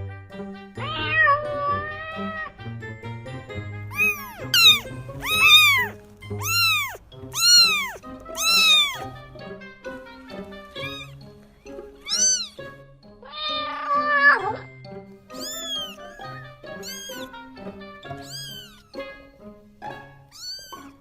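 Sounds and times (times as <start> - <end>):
background music: 0.0 - 21.0
cat meowing: 0.8 - 2.6, 3.9 - 9.2, 10.7 - 11.2, 12.0 - 14.6, 15.3 - 17.5, 18.1 - 19.1, 20.3 - 21.0.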